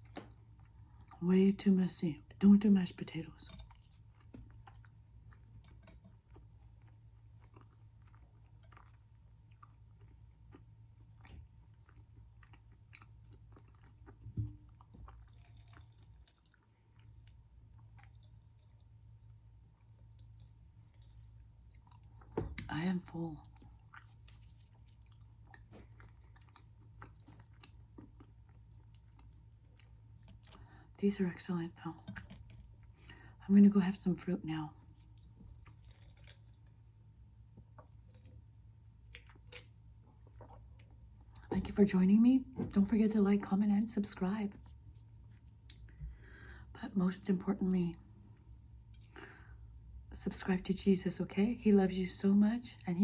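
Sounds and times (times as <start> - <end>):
close-up chewing: 0.0 - 1.2, 2.2 - 31.0, 31.7 - 33.4, 34.7 - 41.6, 48.3 - 49.8.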